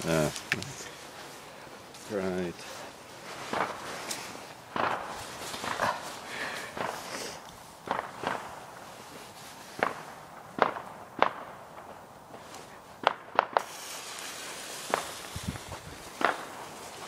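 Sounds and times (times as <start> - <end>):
firework cracks: 3.4 - 17.0.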